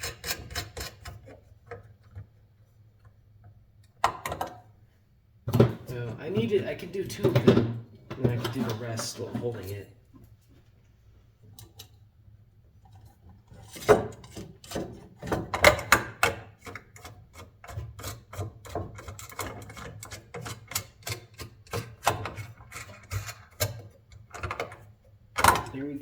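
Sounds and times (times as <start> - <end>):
small metal clicks and scrapes: 0.0 - 2.3, 16.5 - 25.7.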